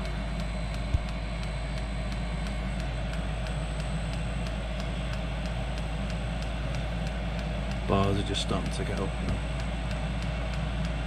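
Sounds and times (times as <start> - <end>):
heater fan hum: 0.0 - 11.0.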